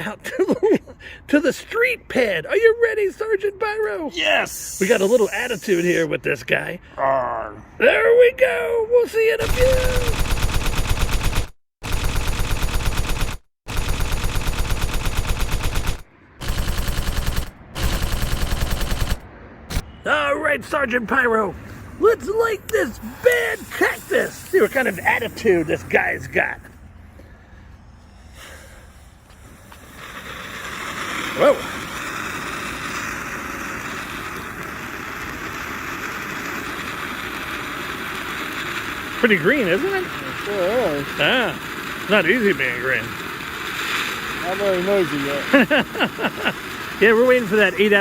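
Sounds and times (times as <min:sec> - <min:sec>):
firework fountain hissing: 0:04.2 - 0:06.1, 0:09.2 - 0:11.3, 0:22.3 - 0:27.2, 0:27.8 - 0:48.0
rapid bangs: 0:09.4 - 0:19.9.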